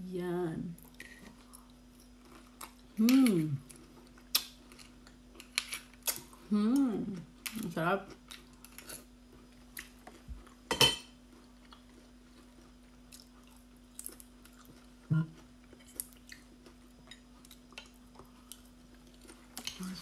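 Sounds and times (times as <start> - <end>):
faint steady hum: 0.0 - 20.0
soft chewing: 0.8 - 6.5, 7.1 - 20.0
person humming mm: 3.0 - 3.6.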